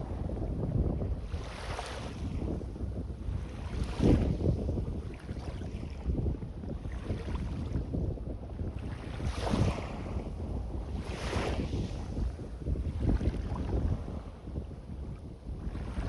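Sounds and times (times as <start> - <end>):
wind buffeting microphone: 0.0 - 16.0
small waves washing onto sand: 1.2 - 2.6, 3.3 - 6.1, 8.7 - 14.4.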